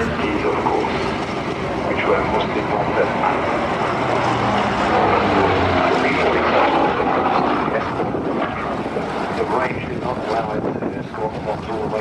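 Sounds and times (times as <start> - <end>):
propeller aircraft flying past: 0.0 - 12.0.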